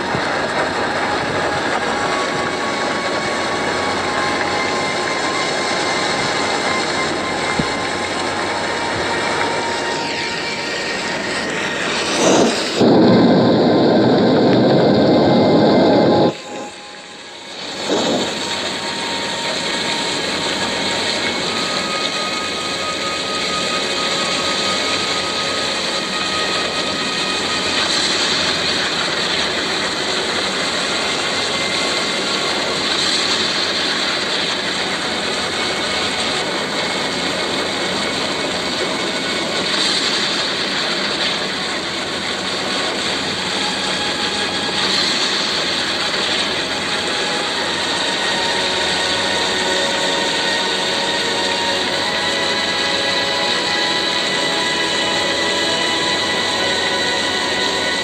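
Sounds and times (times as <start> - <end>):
rain: 0.0 - 58.0
storm wind roaring: 0.0 - 58.0.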